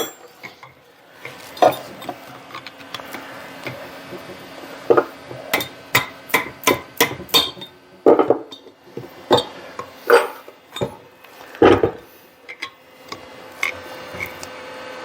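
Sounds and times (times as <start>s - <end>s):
metal parts clinking: 0.0s - 2.7s.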